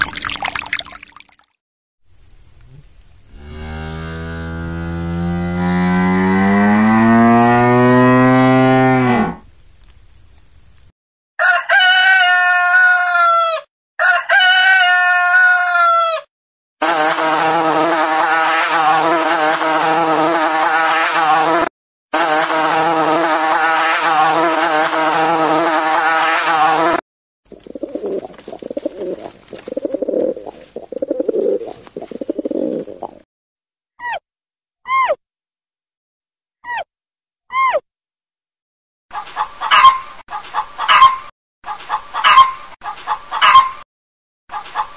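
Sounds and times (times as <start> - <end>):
rooster crowing: 11.4 - 16.3
bee buzzing: 27.5 - 33.2
pigeons cooing: 27.5 - 33.2.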